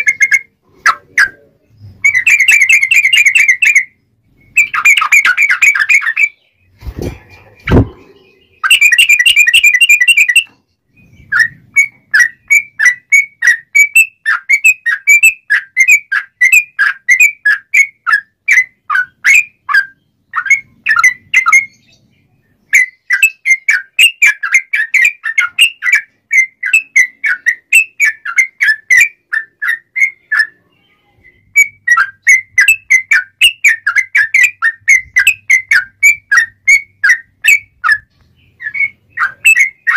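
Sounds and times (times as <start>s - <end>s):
low thumps: 6.8s - 8.2s
bulbul singing whistled notes: 7.5s - 22.0s.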